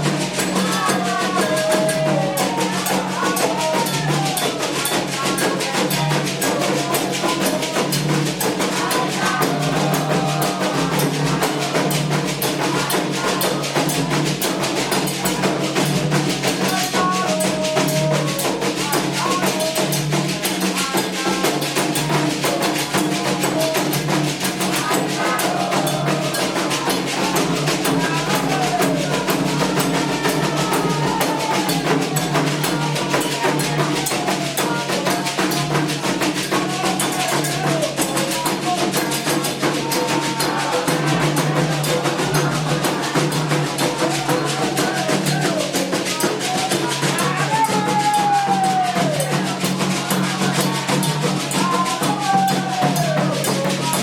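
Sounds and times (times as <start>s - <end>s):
hand drums playing fast rhythm: 0.0s - 54.0s
person singing: 0.0s - 54.0s.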